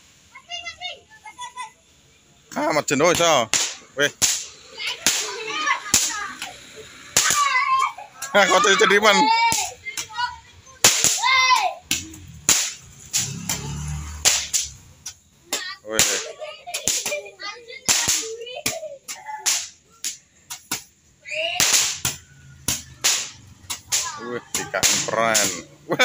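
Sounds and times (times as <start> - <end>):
fireworks bangs and cracks: 3.5 - 6.5, 10.8 - 14.8, 21.6 - 25.6.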